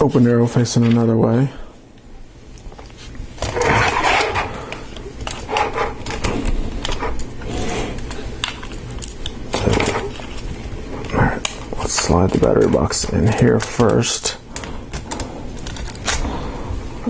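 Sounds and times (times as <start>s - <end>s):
plastic parts clicking and rustling: 8.0s - 16.4s.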